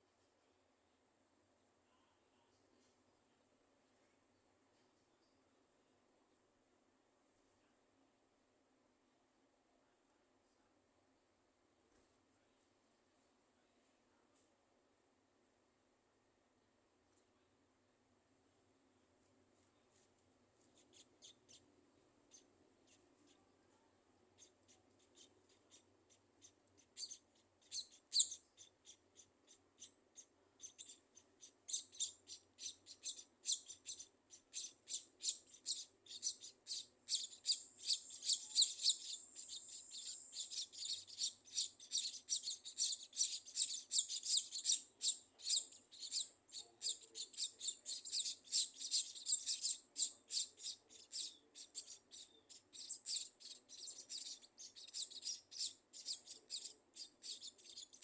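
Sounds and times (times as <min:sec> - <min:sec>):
birds chirping: 0:24.4 - 0:58.0.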